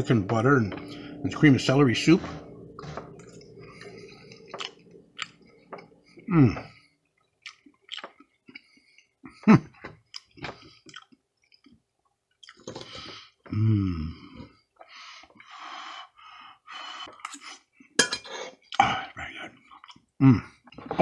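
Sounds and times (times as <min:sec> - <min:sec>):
person chewing food: 0:02.2 - 0:13.4, 0:19.6 - 0:20.8
person humming: 0:06.0 - 0:06.8, 0:13.5 - 0:14.3.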